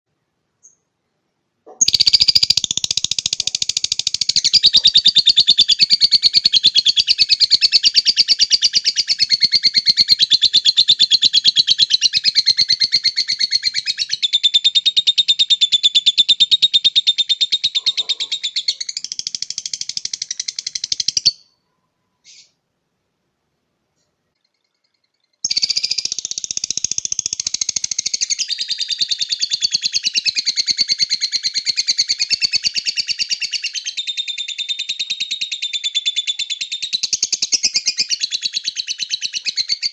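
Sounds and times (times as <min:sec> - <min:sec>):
lovebird high rapid chatter: 0:01.7 - 0:14.2, 0:17.7 - 0:21.4, 0:25.5 - 0:33.7.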